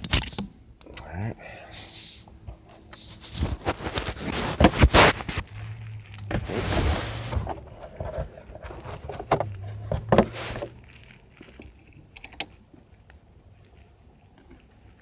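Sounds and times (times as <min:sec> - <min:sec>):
metal tools clunking and clinking: 0:12.2 - 0:12.6.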